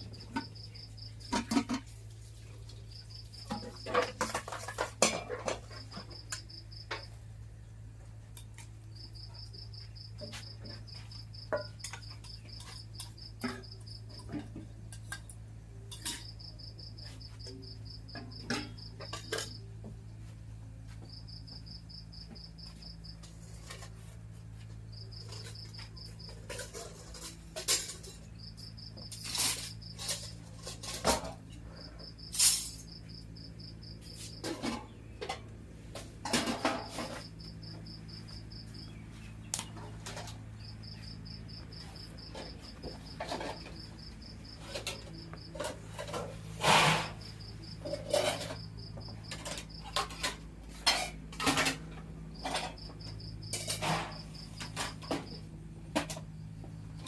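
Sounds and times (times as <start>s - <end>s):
cricket chirping: 0.0s - 1.9s, 24.9s - 31.0s, 31.7s - 35.0s, 36.2s - 57.0s
dishes and utensils clattering: 0.0s - 7.2s, 9.4s - 19.9s, 25.0s - 33.3s, 34.0s - 55.4s
steady low hum: 0.0s - 57.0s.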